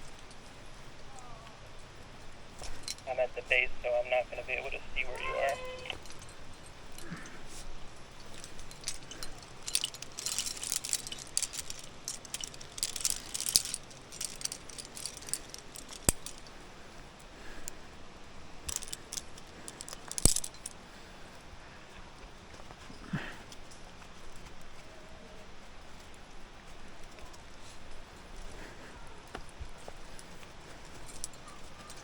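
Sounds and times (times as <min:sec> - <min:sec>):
climbing gear jangling and clinking: 0:02.5 - 0:03.1, 0:05.1 - 0:16.6, 0:18.6 - 0:20.8, 0:29.3 - 0:32.0.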